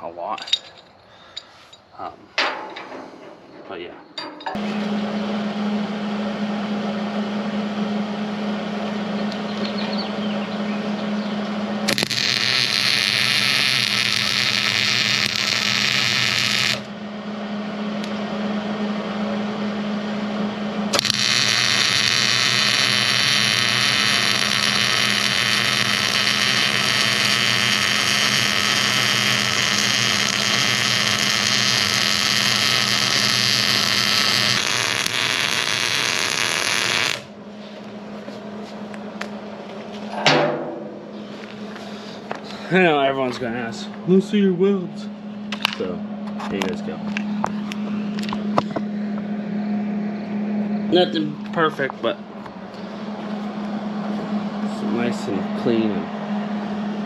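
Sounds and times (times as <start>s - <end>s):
constant low hum: 0.0s - 57.0s
arc welding crackling hiss: 11.9s - 16.9s, 20.9s - 37.3s.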